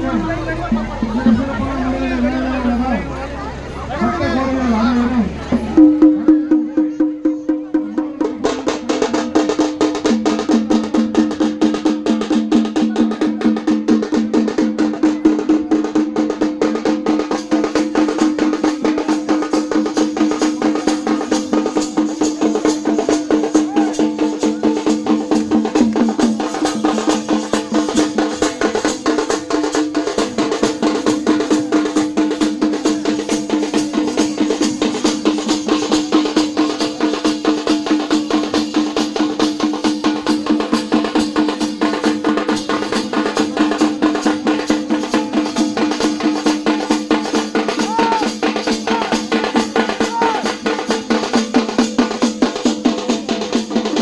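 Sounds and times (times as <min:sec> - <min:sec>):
fast drumming: 0:04.0 - 0:54.0.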